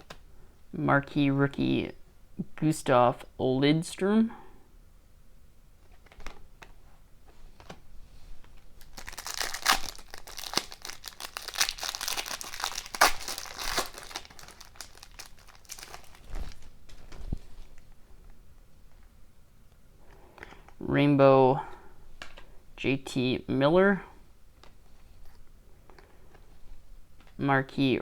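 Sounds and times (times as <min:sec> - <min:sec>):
card pack wrapper crinkling: 0:08.6 - 0:17.8.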